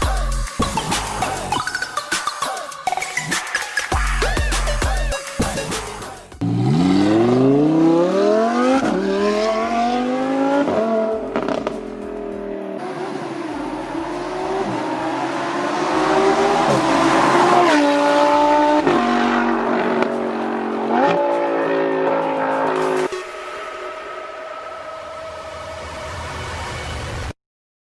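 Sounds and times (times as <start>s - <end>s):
sports car engine accelerating: 6.4s - 24.9s.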